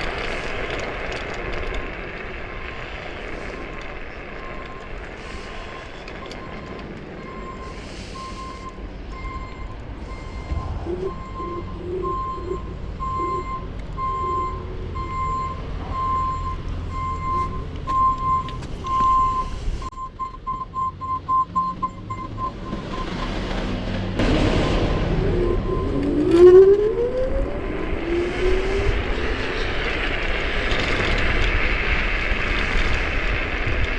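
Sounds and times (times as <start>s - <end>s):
ride rumble and wind noise: 0.0s - 33.9s
electronic beeping: 5.7s - 23.1s, 24.6s - 27.6s.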